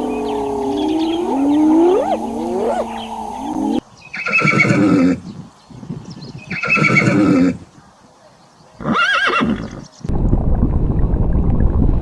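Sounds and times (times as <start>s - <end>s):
overlapping gliding calls: 0.0s - 3.8s
horse whinnying loudly: 0.0s - 5.0s, 8.8s - 9.8s.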